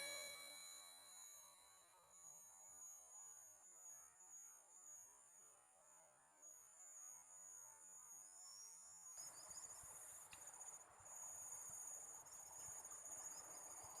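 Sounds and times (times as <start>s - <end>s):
insects chirring: 6.4s - 14.0s.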